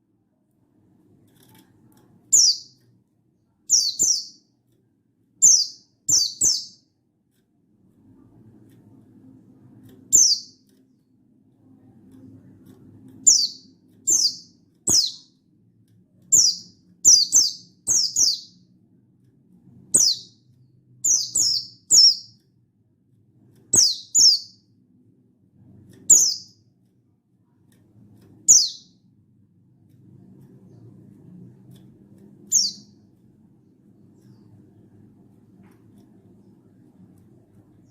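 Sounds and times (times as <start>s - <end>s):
faint low hum: 0.0s - 37.9s
bird high-pitched calls: 2.3s - 2.7s, 3.7s - 4.4s, 5.4s - 6.8s, 10.1s - 10.5s, 13.2s - 15.3s, 16.3s - 18.6s, 20.0s - 20.4s, 21.0s - 22.3s, 23.8s - 24.6s, 26.1s - 26.5s, 28.5s - 28.9s, 32.5s - 32.9s.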